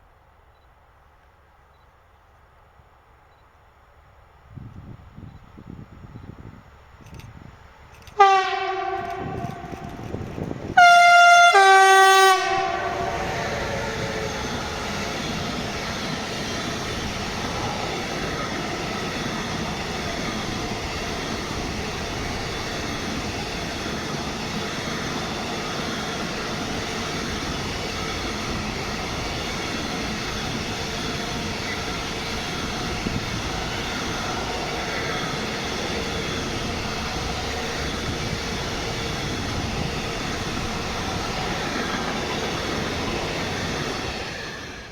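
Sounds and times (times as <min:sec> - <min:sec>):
train running past: 0:00.0 - 0:44.9
train horn blasts: 0:08.1 - 0:10.2, 0:10.8 - 0:14.4.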